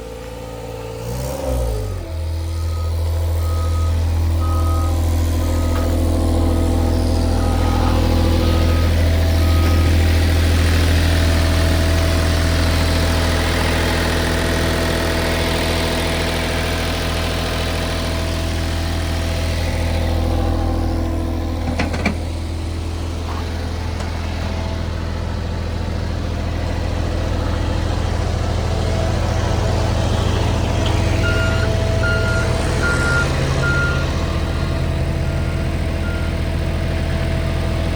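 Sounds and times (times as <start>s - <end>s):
diesel engine running: 0.0s - 37.9s
backup alarm beeping: 2.6s - 5.8s, 7.3s - 10.1s, 31.2s - 34.1s.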